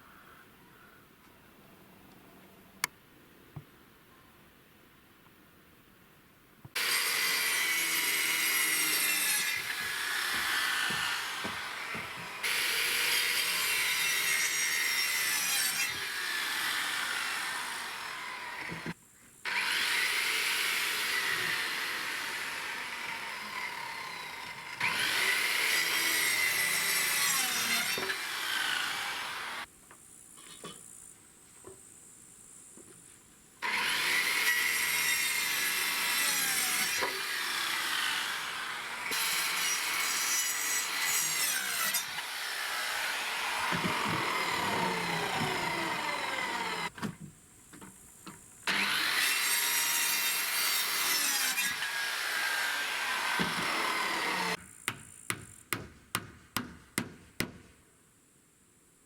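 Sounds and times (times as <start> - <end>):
saw cutting wood: 6.8 - 29.7, 33.6 - 47.0, 48.7 - 54.6.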